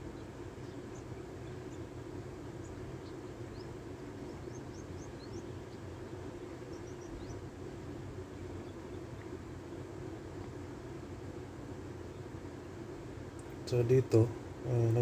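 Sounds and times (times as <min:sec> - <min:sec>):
low motor hum: 0:00.0 - 0:15.0
small birds chirping: 0:00.0 - 0:15.0.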